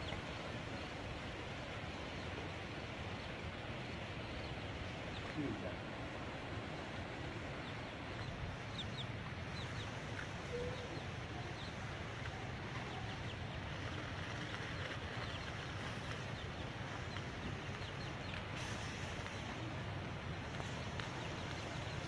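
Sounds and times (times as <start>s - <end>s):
small birds chirping: 0.0s - 5.8s, 6.6s - 22.0s
outdoor background hiss: 0.0s - 22.0s.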